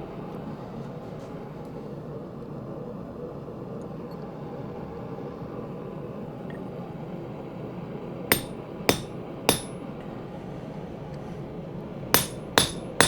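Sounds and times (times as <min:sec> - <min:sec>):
hammer ringing on steel punch: 0:08.3 - 0:09.8, 0:12.2 - 0:13.0.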